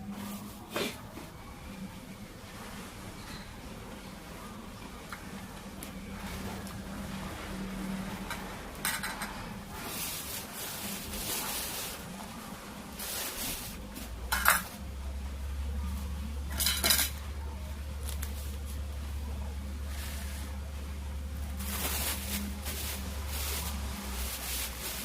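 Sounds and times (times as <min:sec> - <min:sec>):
low steady hum: 0:00.0 - 0:25.0
cutlery clinking on dishes: 0:08.3 - 0:09.4, 0:14.3 - 0:14.8, 0:16.5 - 0:17.2.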